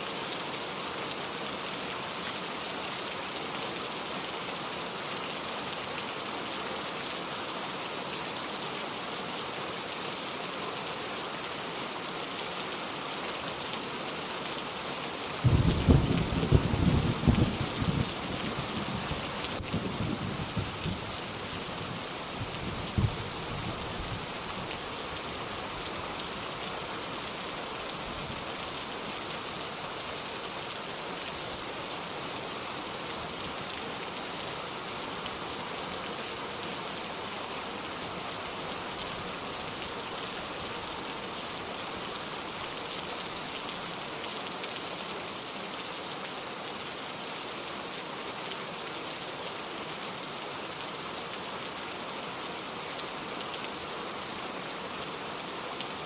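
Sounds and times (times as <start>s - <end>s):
steady rain falling: 0.0s - 56.0s
thunder rumbling: 15.4s - 21.0s.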